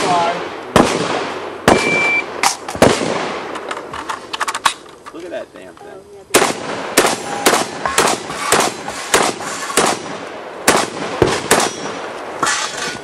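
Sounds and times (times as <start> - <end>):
shotgun shots with echo: 0.0 - 3.5, 6.3 - 12.0.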